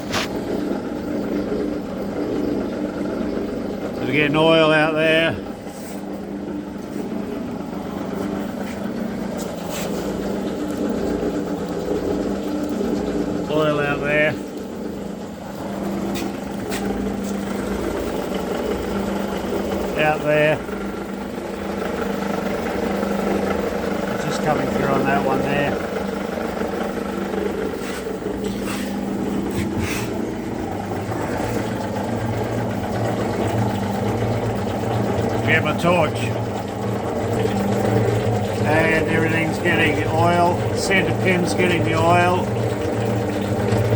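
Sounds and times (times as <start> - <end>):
metal shaper machine humming: 0.0 - 43.9
brief scraping noises: 9.4 - 10.1, 27.8 - 30.2.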